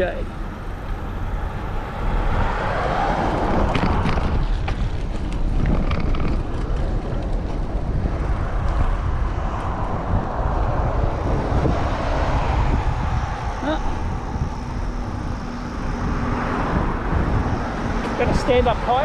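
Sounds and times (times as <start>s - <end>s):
tyre and road noise: 0.0s - 19.0s
wind on microphone: 0.0s - 19.0s
light irregular clicks and rattles: 3.7s - 7.7s.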